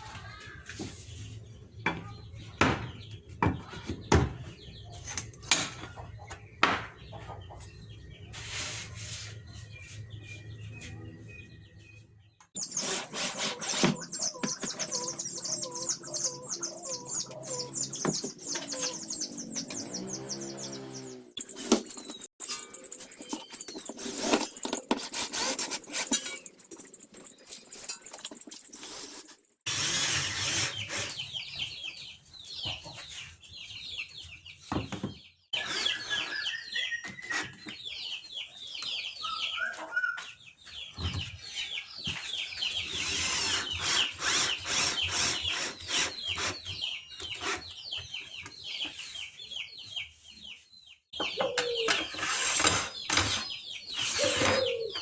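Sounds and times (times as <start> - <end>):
knocks of work on wood: 1.8 - 4.5
high chirping calls: 7.0 - 24.4, 35.1 - 50.6.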